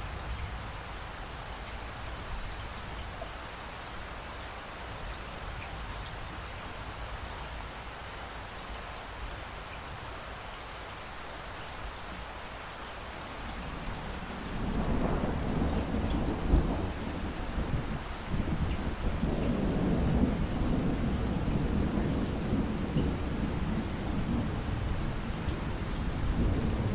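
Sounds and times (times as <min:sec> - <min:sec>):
heavy rain hiss: 0:00.0 - 0:26.9
thunder rumble: 0:13.4 - 0:26.9.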